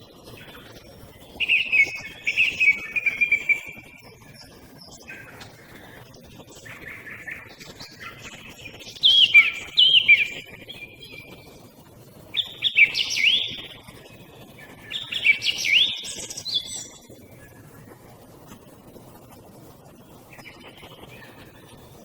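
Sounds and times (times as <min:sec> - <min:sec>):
small birds calling: 0:01.2 - 0:11.5, 0:12.3 - 0:13.8, 0:14.6 - 0:17.6.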